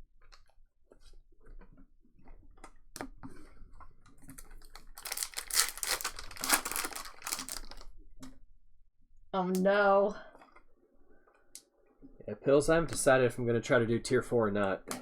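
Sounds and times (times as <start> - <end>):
foil pack crinkling and tearing: 4.4 - 8.0.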